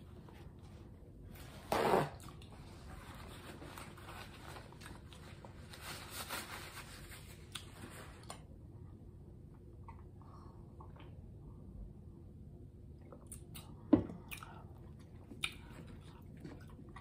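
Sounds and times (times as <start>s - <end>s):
paper napkin rustling: 1.3s - 8.2s
chewing: 13.0s - 17.0s.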